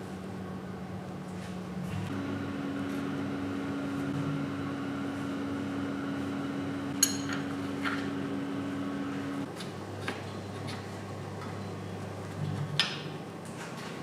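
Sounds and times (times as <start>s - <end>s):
machine humming: 1.8s - 9.5s.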